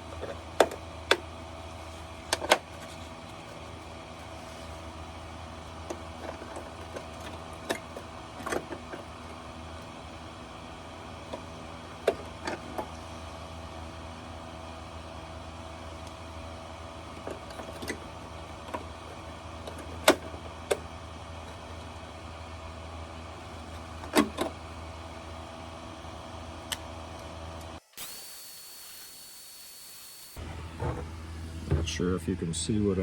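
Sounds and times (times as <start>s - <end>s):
mechanical hum: 0.0s - 33.0s
high-pitched whine: 27.8s - 33.0s.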